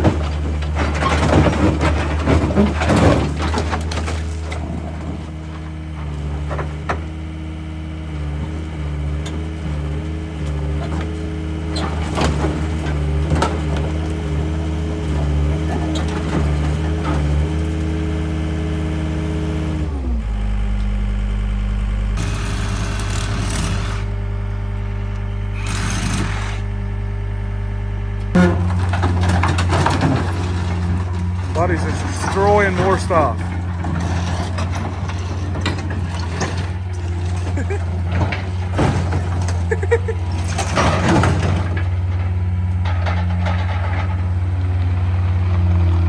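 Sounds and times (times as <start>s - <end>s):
knocks and clanks: 0.0s - 7.1s, 28.3s - 44.3s
machine engine running: 4.1s - 46.0s.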